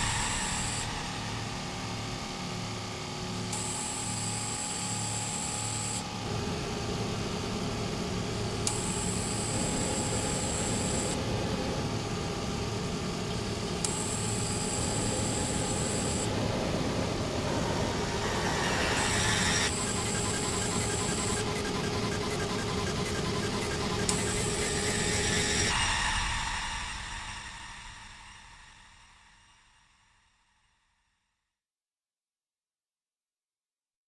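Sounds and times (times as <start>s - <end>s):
electroacoustic noise and hum music: 5.3s - 26.4s.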